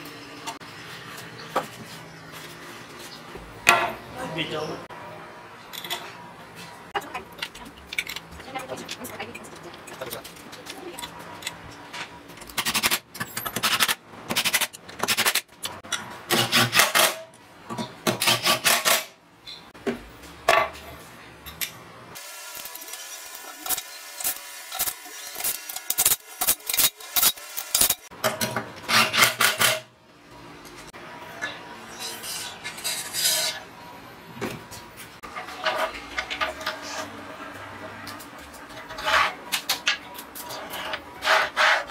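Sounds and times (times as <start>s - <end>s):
metal rails scraping and clacking: 35.2s - 41.9s.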